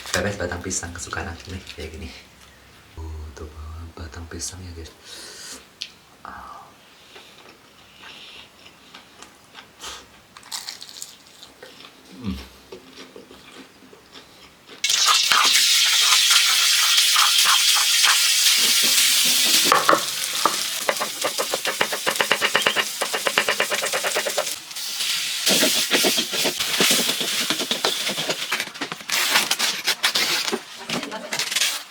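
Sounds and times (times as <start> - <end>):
food sizzling in hot oil: 14.8 - 28.1.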